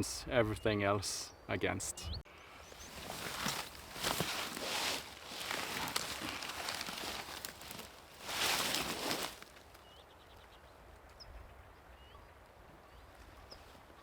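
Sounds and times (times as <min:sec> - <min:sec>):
small birds chirping faintly: 0:00.0 - 0:14.0
rustling movement: 0:02.7 - 0:09.8.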